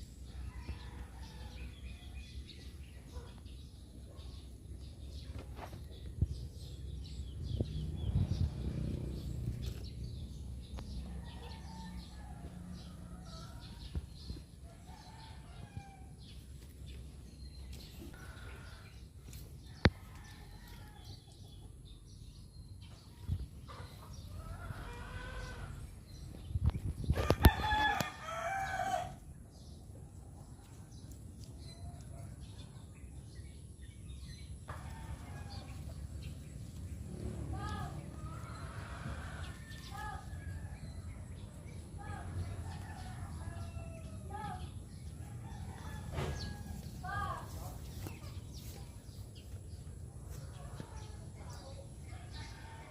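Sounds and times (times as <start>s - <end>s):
small birds chirping: 0.0s - 52.8s
low rumble: 6.2s - 11.1s.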